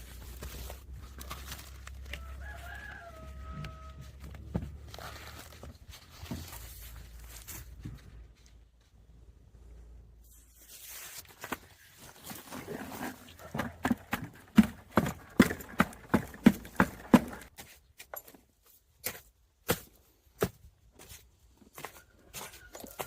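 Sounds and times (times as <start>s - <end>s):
rooster crowing: 2.1s - 4.4s, 22.0s - 23.0s.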